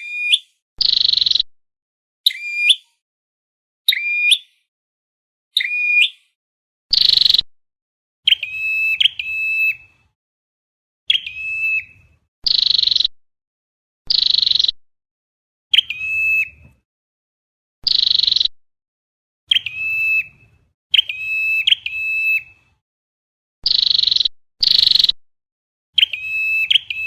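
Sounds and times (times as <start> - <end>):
bird calls: 0.0 - 1.5, 2.2 - 3.0, 3.9 - 4.7, 5.5 - 7.5, 8.3 - 10.0, 11.1 - 13.1, 14.1 - 14.8, 15.7 - 16.7, 17.8 - 18.5, 19.5 - 22.6, 23.6 - 25.2, 26.0 - 27.0.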